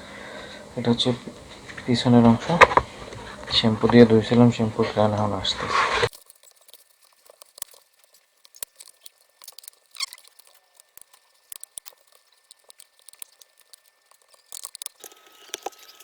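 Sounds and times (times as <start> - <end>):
clicks and rustling of handling: 0.0 - 16.0
short squeak: 9.9 - 10.4.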